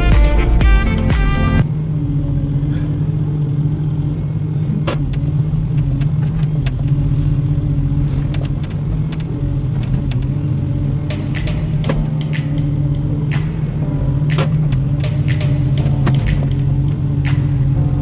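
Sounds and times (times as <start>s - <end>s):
diesel engine humming: 0.0s - 18.0s
sharp clicks or knocks: 11.1s - 17.8s.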